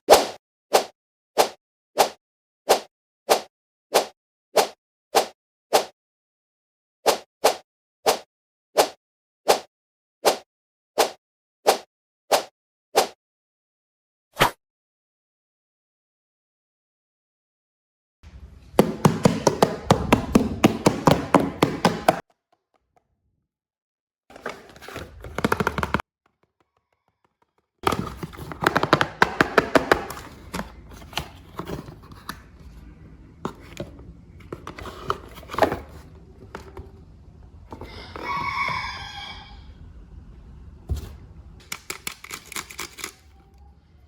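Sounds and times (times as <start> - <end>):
plastic toy packaging clicks and taps: 25.1 - 32.4, 41.6 - 43.3.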